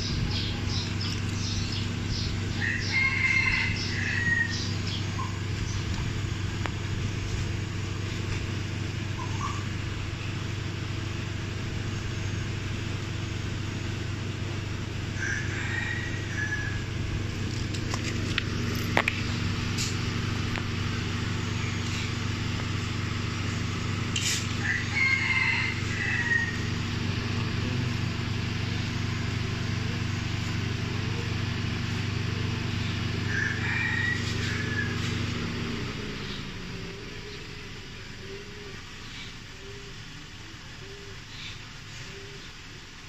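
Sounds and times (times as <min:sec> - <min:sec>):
car engine idling: 0:00.0 - 0:43.0
rooster crowing: 0:01.7 - 0:05.3, 0:15.2 - 0:17.0, 0:24.5 - 0:27.9, 0:33.0 - 0:36.0.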